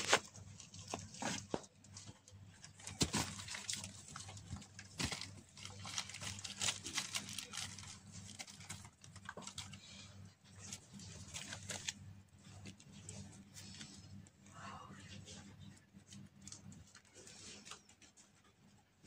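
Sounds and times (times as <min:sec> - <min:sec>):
kittens rustling plastic: 0:00.0 - 0:14.3.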